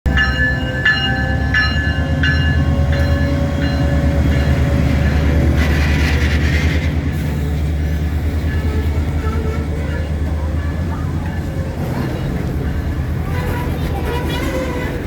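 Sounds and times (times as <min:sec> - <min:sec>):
locomotive bell ringing: 0:00.1 - 0:05.5, 0:08.4 - 0:15.0
locomotive engine rumble: 0:00.1 - 0:15.0.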